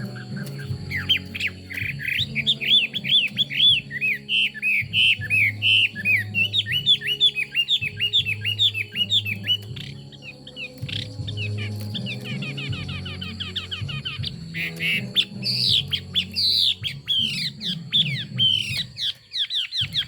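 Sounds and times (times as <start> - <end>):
bird singing whistled notes: 0.0 - 20.0.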